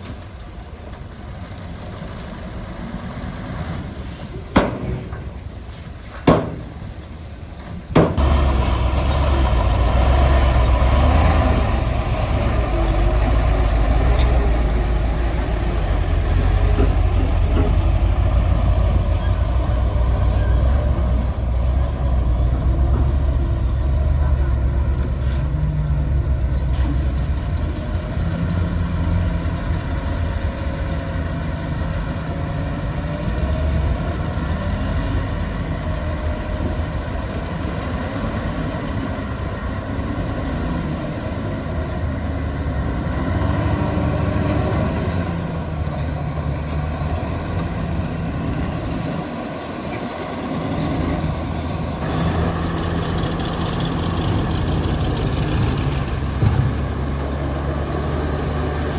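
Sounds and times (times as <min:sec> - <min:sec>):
diesel construction machinery: 0:00.0 - 0:58.9.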